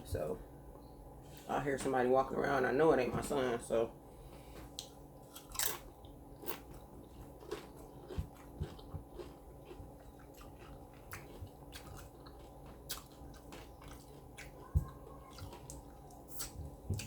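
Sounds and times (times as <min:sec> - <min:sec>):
chewing and crunching: 0:04.8 - 0:17.0.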